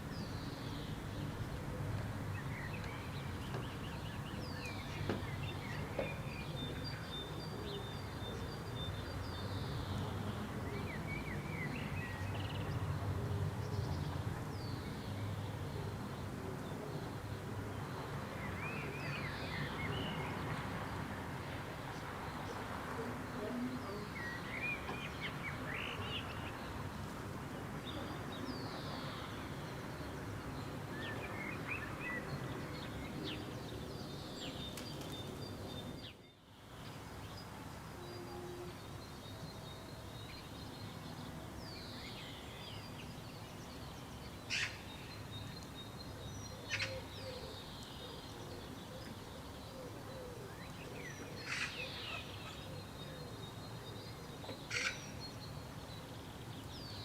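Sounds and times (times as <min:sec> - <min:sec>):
wild birds calling: 0:44.4 - 0:45.3, 0:46.2 - 0:55.5.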